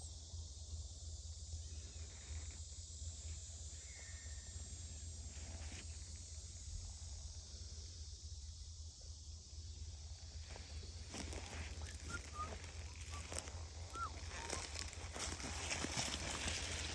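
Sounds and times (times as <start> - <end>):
faint rustle: 10.4 - 16.9
short high bird chirp: 11.8 - 14.7.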